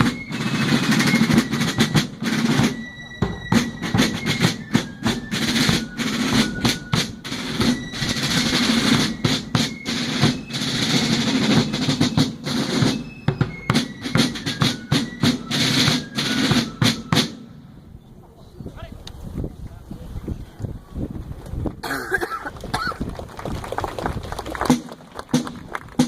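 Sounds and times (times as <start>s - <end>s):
snare drum rolls: 0.0s - 17.5s, 24.6s - 26.0s.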